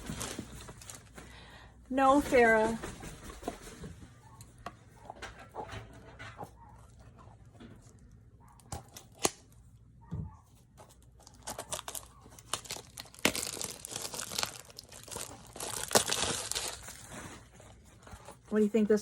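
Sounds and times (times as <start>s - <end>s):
packaging tearing and crinkling: 8.7s - 9.6s, 10.9s - 18.4s.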